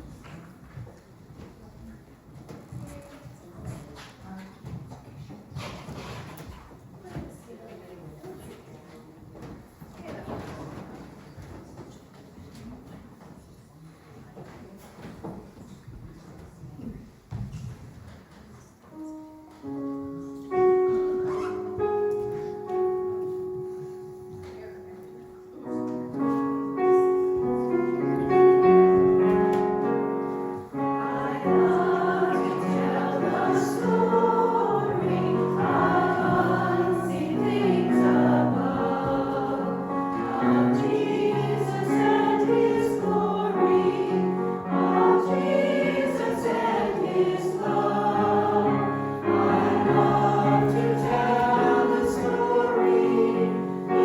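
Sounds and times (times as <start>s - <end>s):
piano playing: 19.0s - 54.0s
choir singing a hymn: 26.0s - 54.0s.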